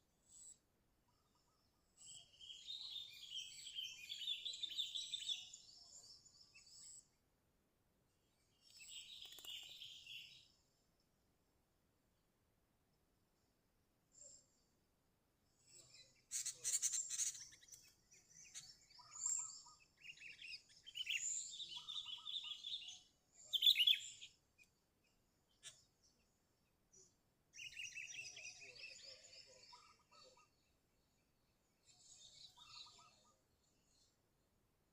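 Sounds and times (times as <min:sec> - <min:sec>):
bird chattering calls: 0:16.3 - 0:17.7.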